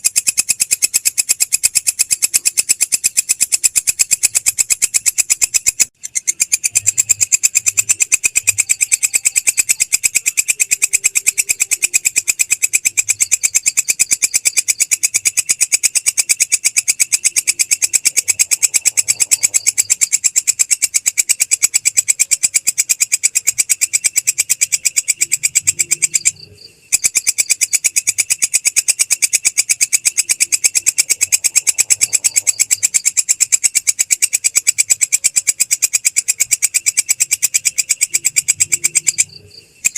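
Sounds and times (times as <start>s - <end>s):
insect trilling: 0.0s - 39.9s.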